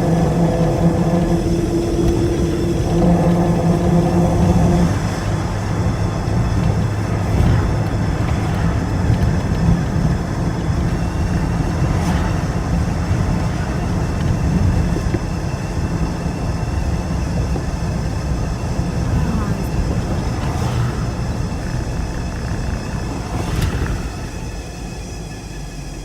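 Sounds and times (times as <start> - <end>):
car engine low rumble: 0.0 - 26.0.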